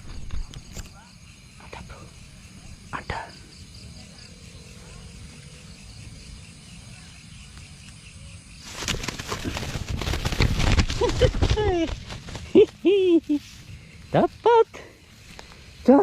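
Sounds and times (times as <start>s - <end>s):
night insects chirping: 0.0s - 16.0s
rustling of vegetation: 8.5s - 16.0s.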